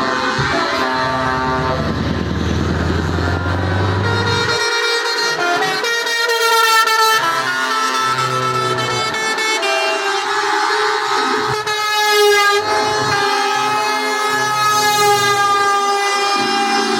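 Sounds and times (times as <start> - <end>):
low engine rumble: 0.0 - 5.8
truck air horns: 0.0 - 16.9.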